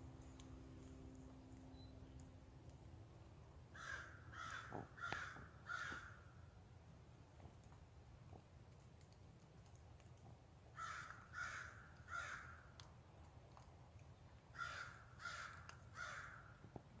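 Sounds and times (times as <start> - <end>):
crow cawing: 3.8 - 6.2, 10.8 - 12.6, 14.6 - 16.5.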